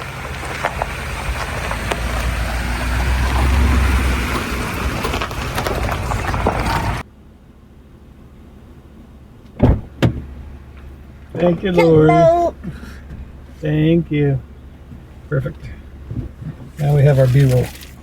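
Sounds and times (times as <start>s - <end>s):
truck driving past: 0.0s - 7.1s, 10.2s - 17.8s
quiet hum: 7.1s - 18.0s.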